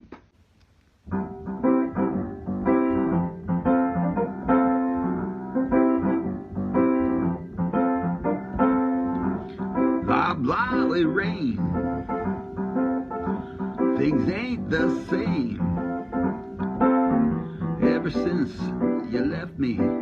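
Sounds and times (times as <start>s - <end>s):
piano playing slow chords: 1.1s - 20.0s.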